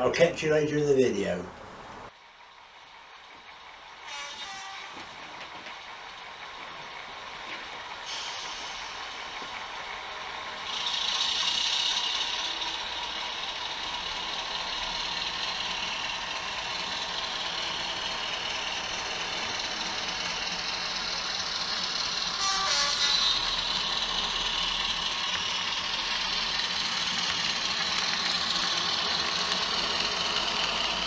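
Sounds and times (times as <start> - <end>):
model train locomotive sounds: 0.0 - 31.0
hissing rush: 7.8 - 31.0.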